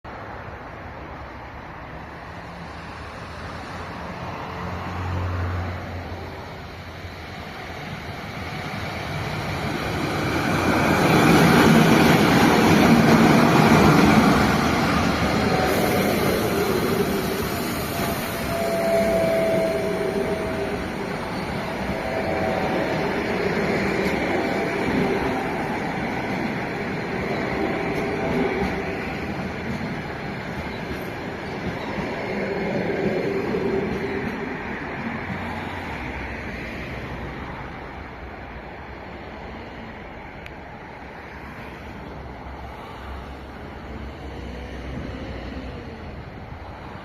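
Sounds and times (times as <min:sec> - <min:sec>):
train passing rumble: 0:00.1 - 0:47.0
faint wheel squeal: 0:15.5 - 0:22.8.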